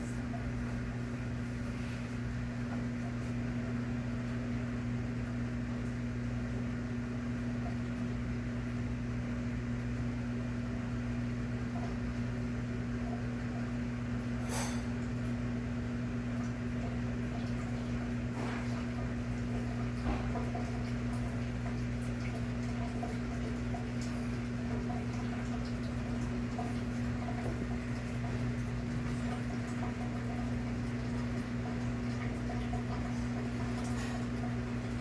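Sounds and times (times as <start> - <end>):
washing machine motor hum: 0.0 - 35.0.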